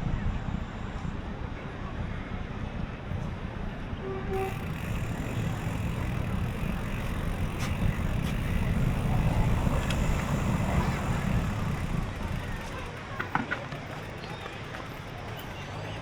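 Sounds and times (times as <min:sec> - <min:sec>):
wind rumbling on microphone: 0:00.0 - 0:13.0
street traffic: 0:00.0 - 0:16.0
faint clicks: 0:04.4 - 0:16.0.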